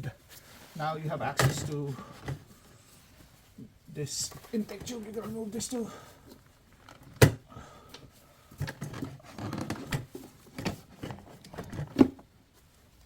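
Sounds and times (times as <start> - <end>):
plastic parts clicking and knocking: 8.6 - 12.3.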